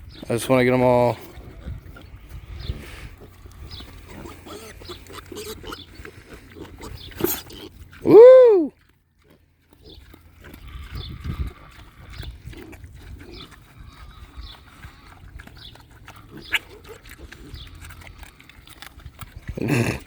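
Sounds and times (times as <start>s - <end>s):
piglets grunting and snuffling: 0.0s - 20.0s
piglet squeaks: 4.2s - 5.9s.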